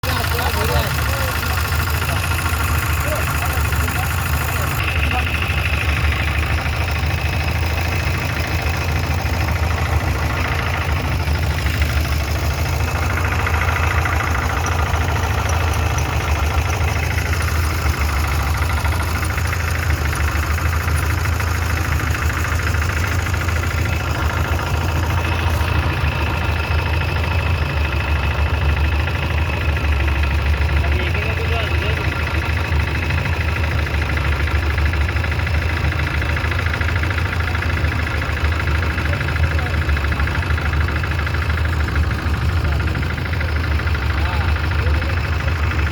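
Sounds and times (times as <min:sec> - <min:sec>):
engine idling: 0:00.0 - 0:45.9.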